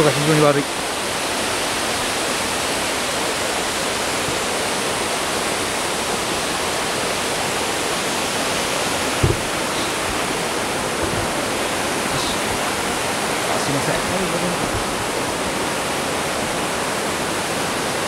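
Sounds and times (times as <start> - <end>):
waterfall roaring: 0.0 - 18.0
low thump: 9.2 - 12.8, 14.6 - 15.2.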